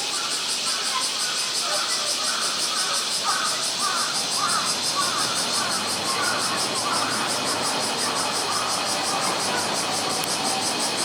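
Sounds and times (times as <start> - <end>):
cicadas droning: 0.0 - 11.0.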